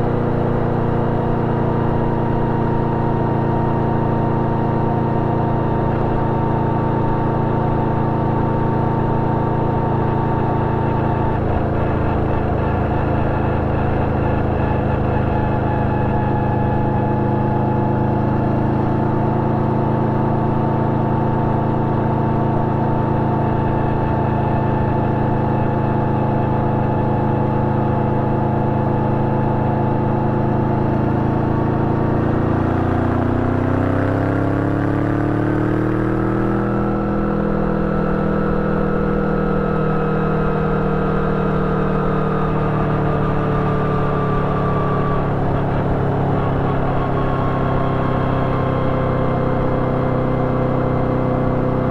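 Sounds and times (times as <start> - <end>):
motorcycle engine revving: 0.0 - 51.9
road noise: 0.0 - 51.9.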